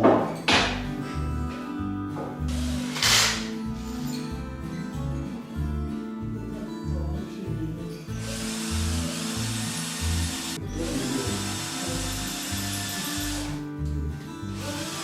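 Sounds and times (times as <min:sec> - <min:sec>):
power drill working wood: 0:02.5 - 0:03.5, 0:08.2 - 0:13.6, 0:14.5 - 0:15.0.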